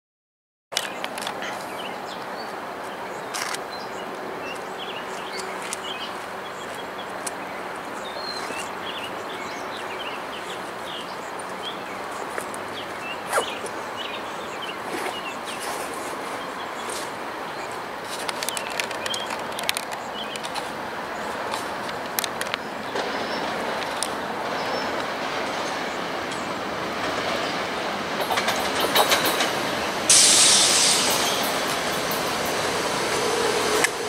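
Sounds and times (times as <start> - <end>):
bird chirps: 12.8 - 15.6
outdoor hiss: 29.4 - 34.0.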